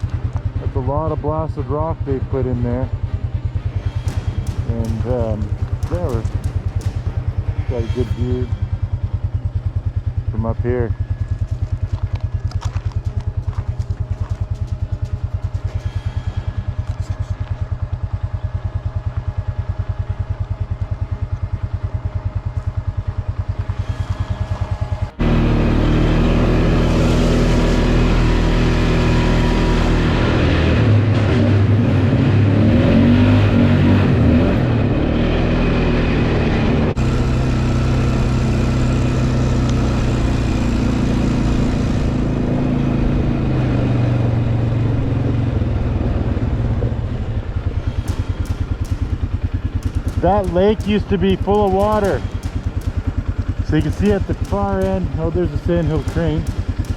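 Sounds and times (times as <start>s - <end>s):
engine revving under way: 0.0s - 18.2s, 23.3s - 56.9s
engine idling: 0.0s - 56.9s
rushing noise: 3.0s - 10.3s.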